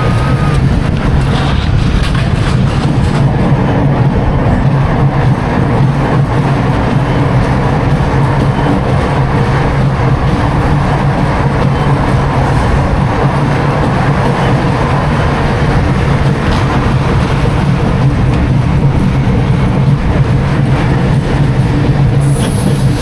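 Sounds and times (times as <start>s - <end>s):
roller coaster wheels rumbling: 0.0s - 23.0s
hiss: 22.2s - 23.0s.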